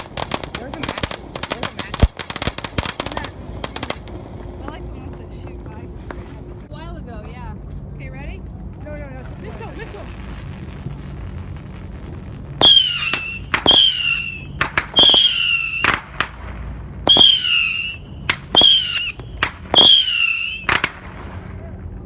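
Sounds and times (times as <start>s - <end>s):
sharp firework pops: 0.0s - 6.2s, 10.2s - 21.5s
shrill whistling firework missiles: 10.0s - 21.6s.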